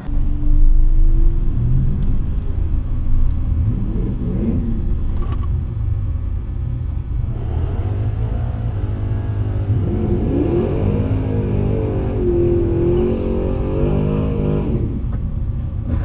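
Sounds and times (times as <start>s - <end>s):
vehicle engine revving: 7.1s - 15.2s, 15.8s - 16.0s.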